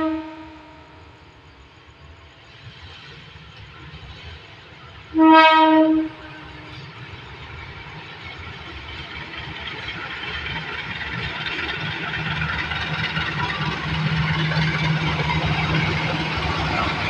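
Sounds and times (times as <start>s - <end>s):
diesel locomotive engine running: 6.1s - 17.0s.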